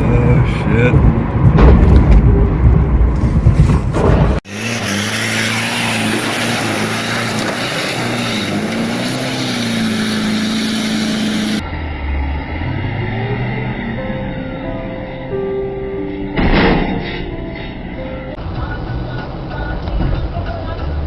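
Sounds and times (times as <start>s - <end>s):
loud low vehicle rumble: 0.0s - 21.0s.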